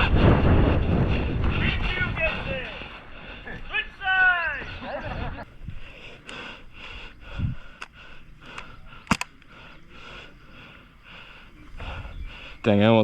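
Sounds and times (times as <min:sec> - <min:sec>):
airsoft gun crack: 0:07.8 - 0:09.8.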